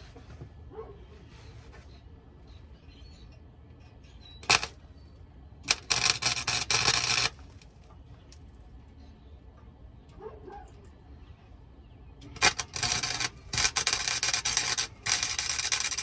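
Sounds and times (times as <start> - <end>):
welding arc crackling: 4.4 - 4.8, 5.7 - 7.7, 12.2 - 16.0.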